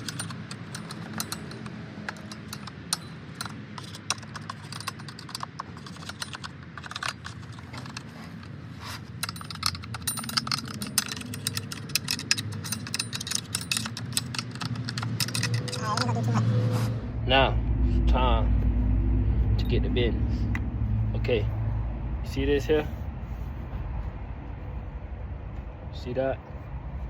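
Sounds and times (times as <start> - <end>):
metal parts clinking and rattling: 0.0 - 16.4
steady low rumble: 15.7 - 27.0.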